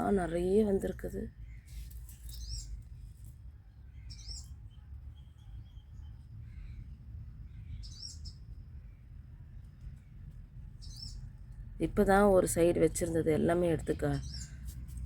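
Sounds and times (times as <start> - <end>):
small bird chirping: 1.1 - 11.5, 13.7 - 15.0.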